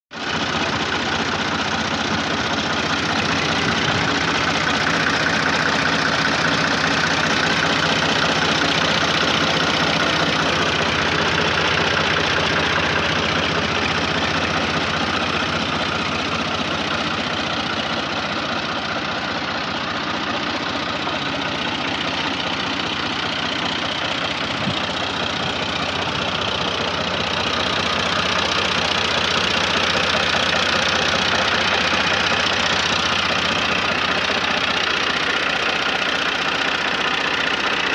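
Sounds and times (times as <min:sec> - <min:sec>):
tractor diesel engine chugging: 0:00.1 - 0:37.9.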